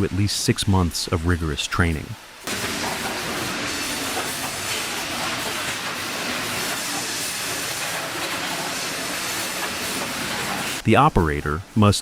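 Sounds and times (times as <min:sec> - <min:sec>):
sawmill machinery hissing: 0:02.4 - 0:10.8.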